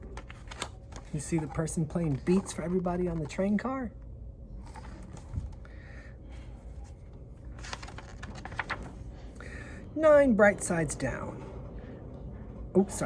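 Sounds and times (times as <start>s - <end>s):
book page turning rustles: 0.0s - 3.6s, 4.6s - 5.6s, 6.4s - 9.4s
low steady hum: 0.0s - 13.0s.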